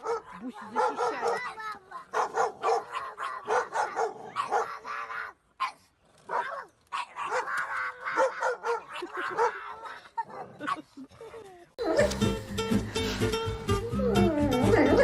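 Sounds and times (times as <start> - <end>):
dog barking and yipping: 0.0 - 10.9, 11.9 - 12.4.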